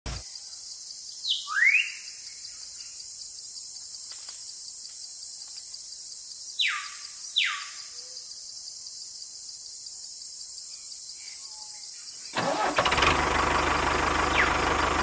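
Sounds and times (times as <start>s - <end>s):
rising whistled bird call: 1.2s - 2.1s, 14.3s - 14.6s.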